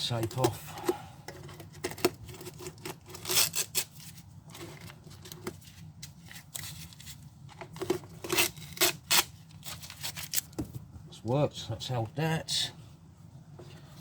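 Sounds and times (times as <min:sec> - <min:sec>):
adhesive tape tearing: 0:02.5 - 0:04.1, 0:08.2 - 0:10.5.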